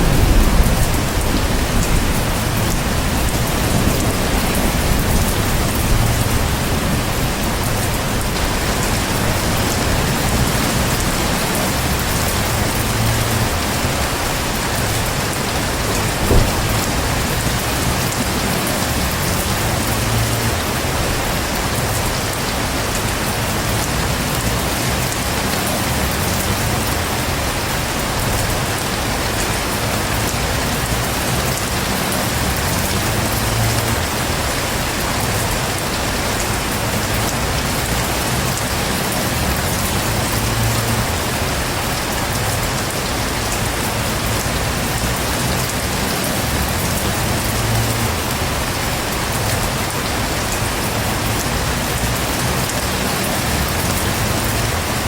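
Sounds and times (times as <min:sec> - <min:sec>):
distant thunder rumbles: 0:00.0 - 0:20.3
heavy rain: 0:00.0 - 0:55.0
sharp tap: 0:16.2 - 0:17.0.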